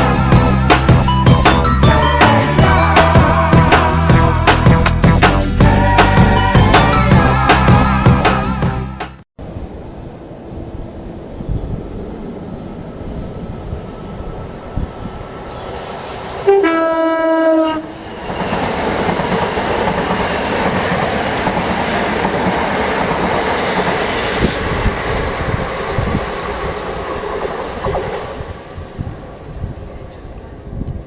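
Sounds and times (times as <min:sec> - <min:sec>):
train rushing past: 0:00.0 - 0:31.0
two-tone train horn: 0:16.4 - 0:18.0
wheels clattering on rails: 0:17.9 - 0:29.3.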